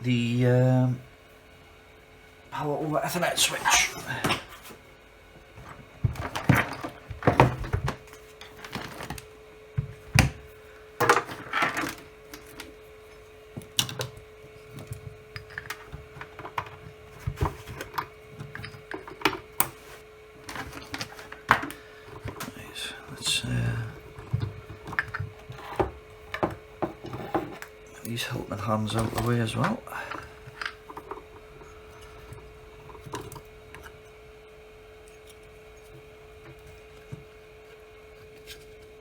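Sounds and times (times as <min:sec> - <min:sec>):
faint steady hum: 0:00.0 - 0:39.0
objects knocking on a workbench: 0:05.6 - 0:08.0, 0:24.2 - 0:27.6.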